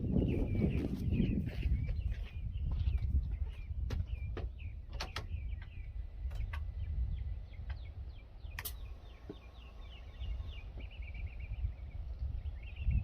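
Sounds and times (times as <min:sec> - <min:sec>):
low rumble: 0:00.0 - 0:13.0
small birds chirping: 0:00.0 - 0:13.0
sharp clicks: 0:08.5 - 0:08.9.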